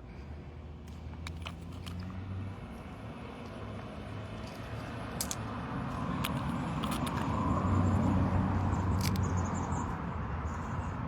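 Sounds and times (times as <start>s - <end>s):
vehicle passing with low rumble: 1.8s - 11.0s.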